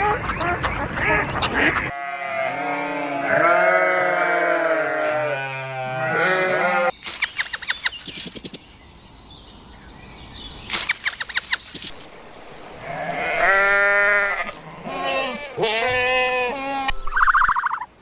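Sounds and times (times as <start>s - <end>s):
animal bleating: 1.7s - 6.9s, 12.8s - 17.1s
high clicking chirps: 7.0s - 8.8s, 10.7s - 15.7s.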